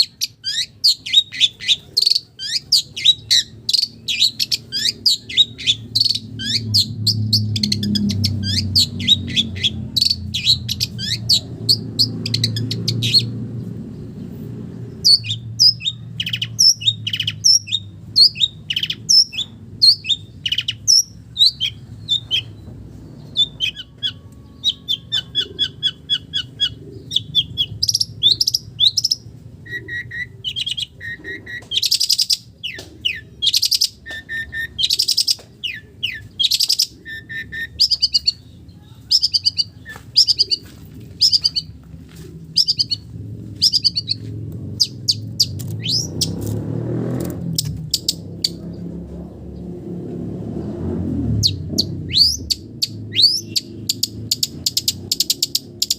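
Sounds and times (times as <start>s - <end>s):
bird singing chirps and trills: 0.0s - 41.8s, 42.4s - 55.9s
low background rumble: 37.0s - 55.1s.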